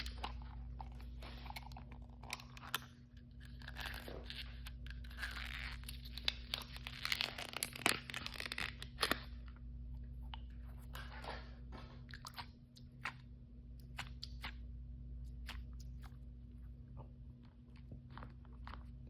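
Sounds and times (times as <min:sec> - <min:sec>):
plastic packaging crinkling: 0:03.4 - 0:09.3.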